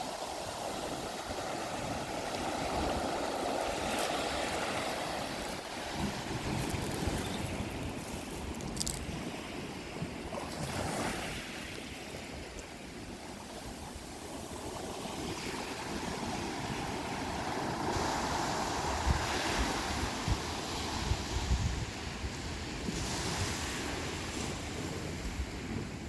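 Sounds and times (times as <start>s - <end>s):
sea waves on rocky shore: 0.0s - 26.0s
wind buffeting microphone: 0.4s - 26.0s.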